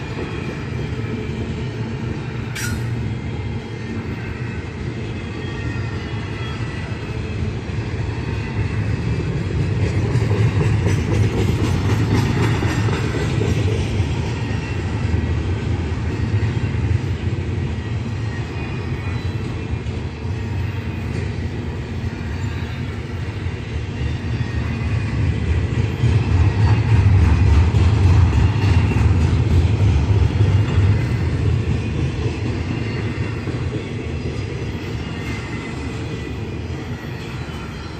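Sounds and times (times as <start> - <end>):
train wheels rumbling on rail: 0.0 - 37.9
faint clickety-clack: 9.6 - 14.4.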